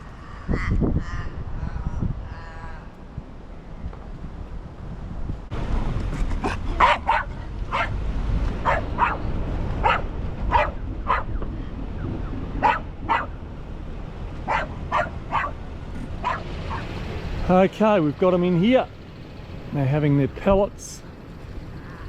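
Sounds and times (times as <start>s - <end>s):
wind rumble on microphone: 0.0s - 19.8s
dog barking: 6.8s - 8.0s, 8.6s - 11.3s, 12.6s - 13.4s, 14.4s - 15.6s, 16.2s - 16.9s.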